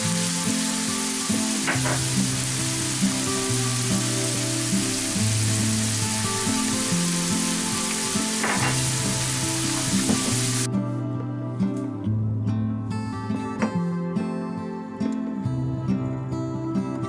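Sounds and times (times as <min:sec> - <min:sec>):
minced pork sizzling in a pan: 0:00.0 - 0:10.7
soft background music: 0:00.0 - 0:17.0.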